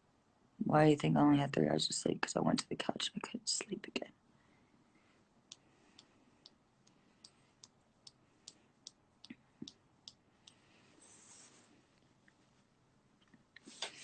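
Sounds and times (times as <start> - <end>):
soft hiss: 3.5 - 14.0
faint regular clicking: 5.4 - 10.7.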